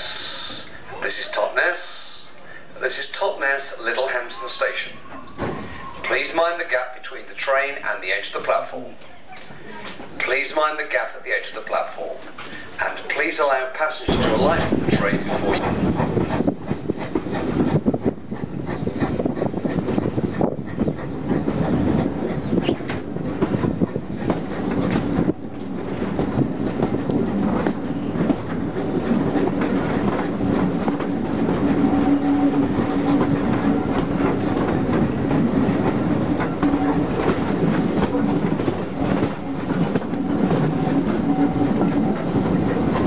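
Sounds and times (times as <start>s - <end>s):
train wheels clattering over rail joints: 14.0s - 43.0s.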